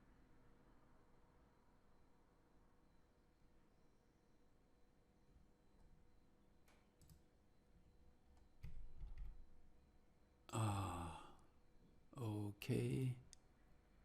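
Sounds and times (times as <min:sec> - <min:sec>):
computer mouse clicks: 0:06.7 - 0:07.3
short wordless vocal sound: 0:10.5 - 0:11.5, 0:12.1 - 0:13.4.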